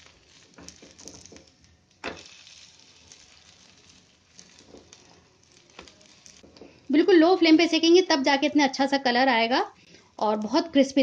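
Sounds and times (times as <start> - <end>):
faint frying sizzle: 0.0 - 11.0
patty knocking in pan: 0.4 - 2.3, 4.3 - 6.8.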